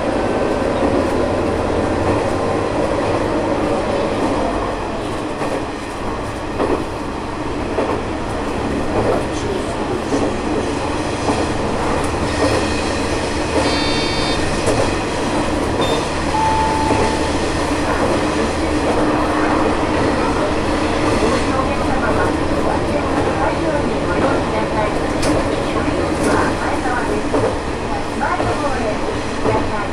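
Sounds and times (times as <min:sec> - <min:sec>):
railcar engine and wheel noise: 0:00.0 - 0:29.9
short lower tone: 0:15.8 - 0:17.6
high tone: 0:15.8 - 0:17.8.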